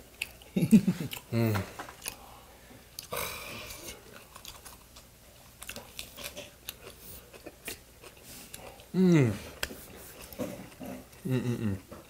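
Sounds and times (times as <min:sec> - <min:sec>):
crunchy chewing: 0:03.0 - 0:08.9.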